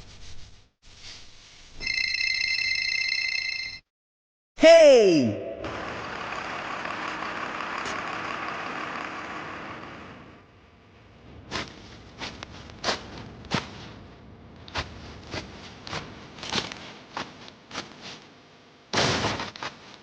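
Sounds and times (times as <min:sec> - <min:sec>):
loud burst of noise: 0:05.6 - 0:11.5.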